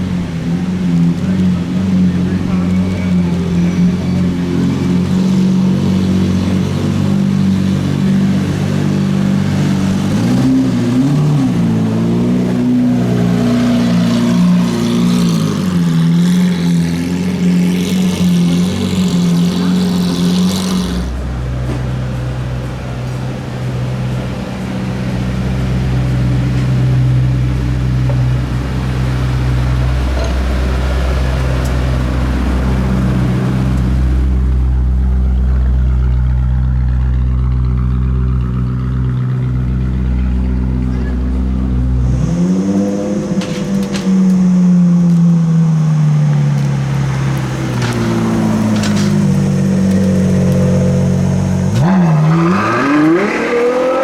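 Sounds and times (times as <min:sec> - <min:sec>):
car engines running at low revs: 0:00.0 - 0:54.0
deep steady engine note: 0:00.0 - 0:54.0.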